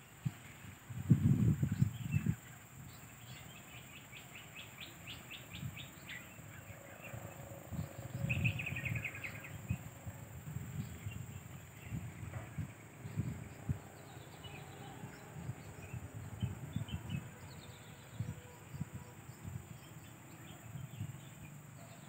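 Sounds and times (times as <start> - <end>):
low thumps on microphone: 11.9 - 13.4.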